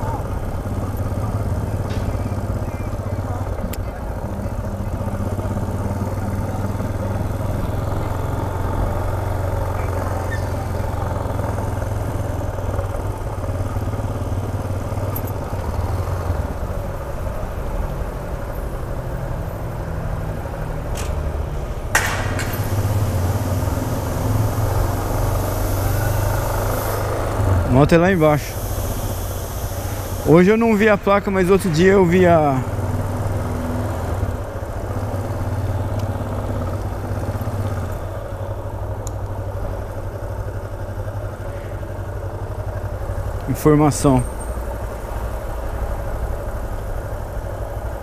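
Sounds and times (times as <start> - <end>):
motorcycle engine running: 0.0 - 48.0
sharp knock: 21.9 - 22.8.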